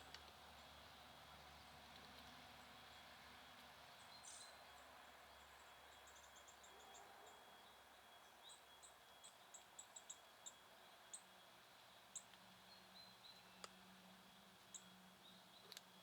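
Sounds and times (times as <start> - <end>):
quiet outdoor hiss: 0.0 - 16.0
songbirds chirping: 0.0 - 16.0.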